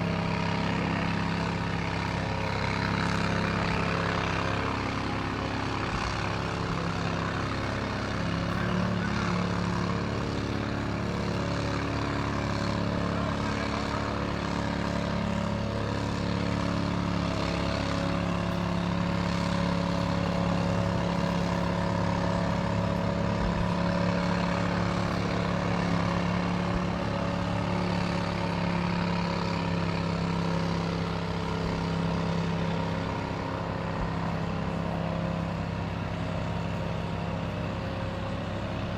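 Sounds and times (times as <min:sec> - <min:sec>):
large engine humming steadily: 0:00.0 - 0:38.9.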